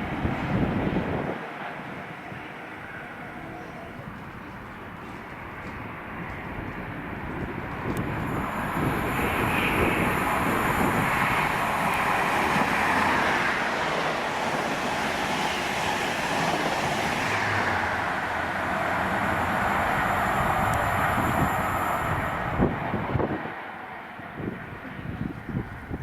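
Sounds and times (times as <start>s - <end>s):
train passing: 0.0s - 26.0s.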